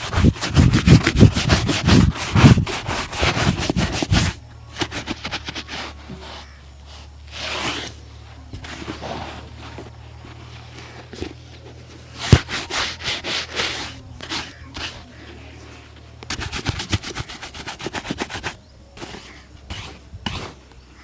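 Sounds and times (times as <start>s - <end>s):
shoe being buffed by hand: 0.0s - 6.5s, 12.1s - 15.2s, 16.3s - 20.6s.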